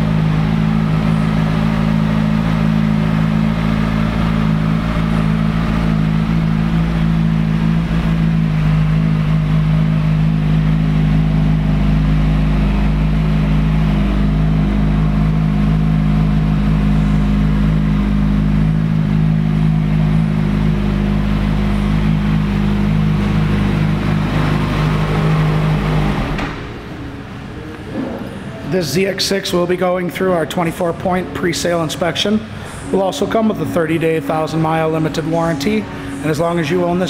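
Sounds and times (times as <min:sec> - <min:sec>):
motorcycle engine idling: 0:00.0 - 0:27.5.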